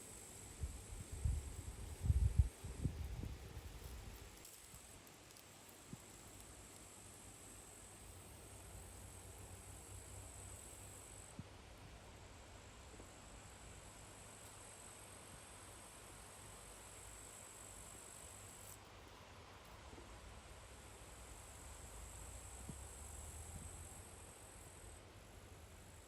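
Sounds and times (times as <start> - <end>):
crickets chirring: 0.0 - 11.4.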